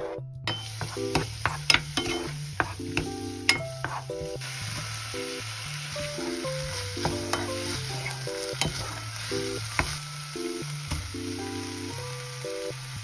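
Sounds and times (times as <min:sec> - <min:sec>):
light background music: 0:00.0 - 0:13.0
scallops sizzling in a pan: 0:00.6 - 0:13.0.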